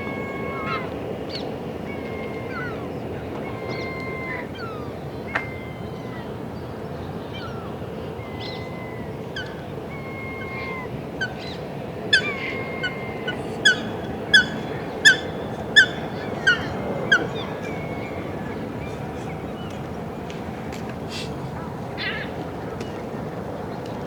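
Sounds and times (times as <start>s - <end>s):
park background: 0.9s - 24.0s
goose honking: 12.2s - 18.6s.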